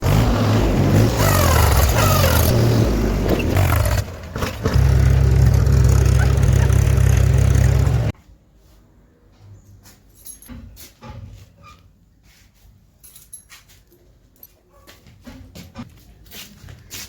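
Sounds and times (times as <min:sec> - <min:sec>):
heavy diesel machinery running: 0:00.0 - 0:08.1.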